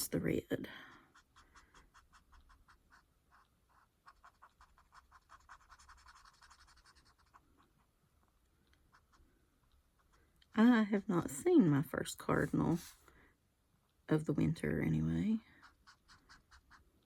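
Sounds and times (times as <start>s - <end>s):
colouring strokes scratching on paper: 0.8s - 7.6s, 12.3s - 13.1s, 15.5s - 16.9s.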